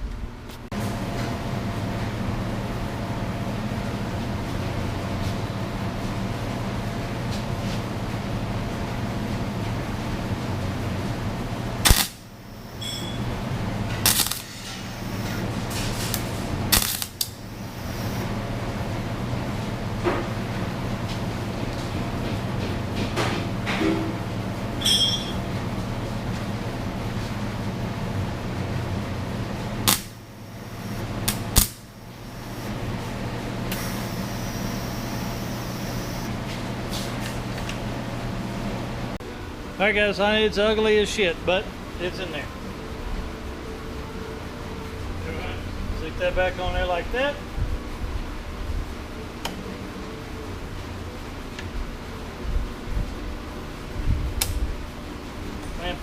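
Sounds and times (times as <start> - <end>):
steady low hum: 0.0 - 56.0
short sharp welder bursts: 11.8 - 13.2, 14.0 - 18.2, 33.8 - 36.3
low hum: 27.4 - 36.4.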